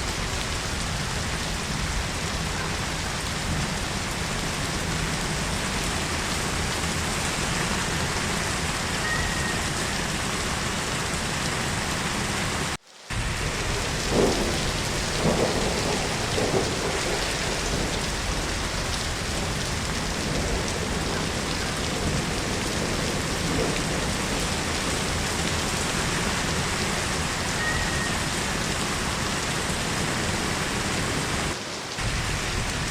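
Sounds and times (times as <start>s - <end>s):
heavy rain falling: 0.0s - 32.9s.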